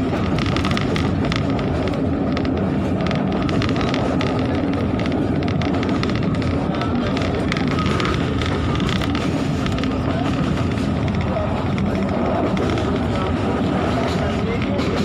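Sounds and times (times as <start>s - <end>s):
wheels rumbling on track: 0.0s - 15.0s
wind noise: 0.0s - 15.0s.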